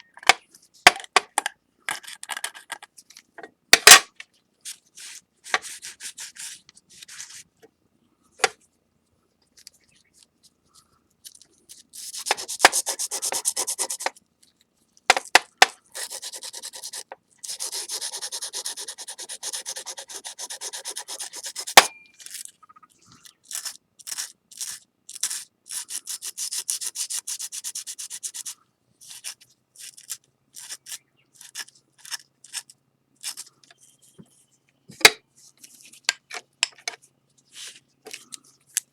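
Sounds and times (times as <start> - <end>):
sandpaper rubbing on plate: 12.0 - 14.1, 16.0 - 21.8.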